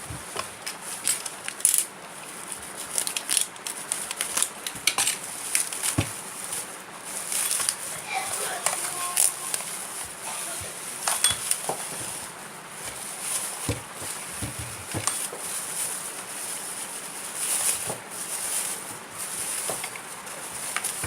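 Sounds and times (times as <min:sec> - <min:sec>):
steady hiss: 0:00.0 - 0:21.0
small hard objects clicking and clinking: 0:07.2 - 0:07.9, 0:11.0 - 0:12.0.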